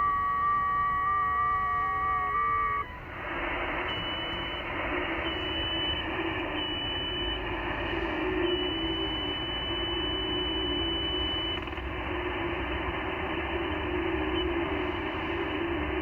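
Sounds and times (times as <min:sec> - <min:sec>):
digital radio tones stepping in pitch: 0:00.0 - 0:16.0
faint radio whistle: 0:00.0 - 0:16.0
radio receiver hiss: 0:00.0 - 0:16.0.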